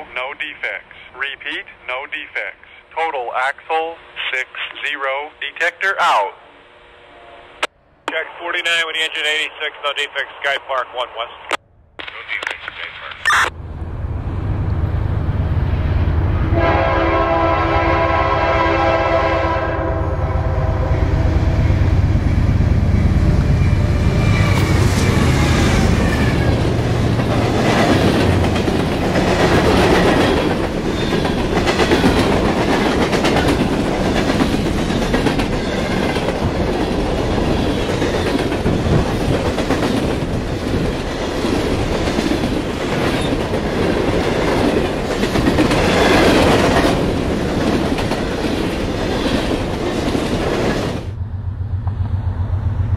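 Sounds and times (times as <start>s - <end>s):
train horn blast: 6.7s - 7.7s, 16.4s - 22.1s
train passing rumble: 13.5s - 52.9s
low engine rumble: 51.1s - 52.9s.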